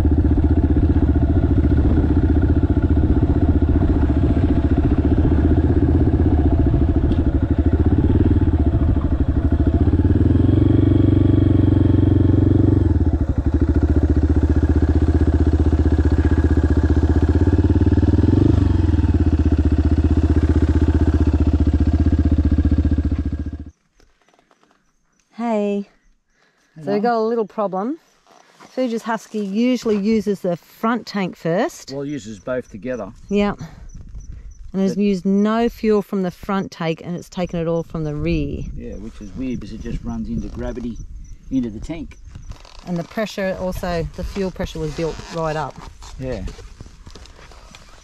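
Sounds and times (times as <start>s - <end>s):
motorcycle engine running: 0.0s - 23.8s, 37.2s - 48.0s.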